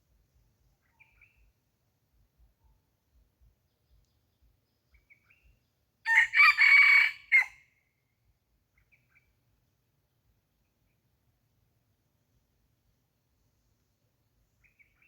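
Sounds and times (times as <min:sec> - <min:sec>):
faint small bird chirps: 0:00.0 - 0:05.9, 0:07.7 - 0:09.6, 0:14.4 - 0:15.0
rooster crowing: 0:06.1 - 0:07.6.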